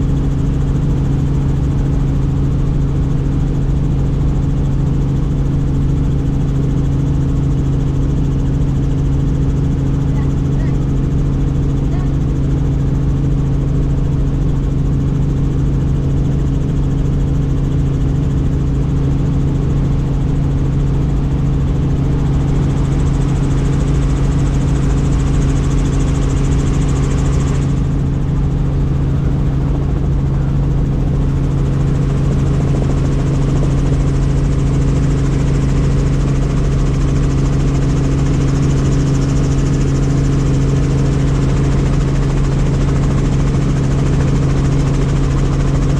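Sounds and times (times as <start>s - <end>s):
helicopter drone from inside cabin: 0.0s - 45.9s.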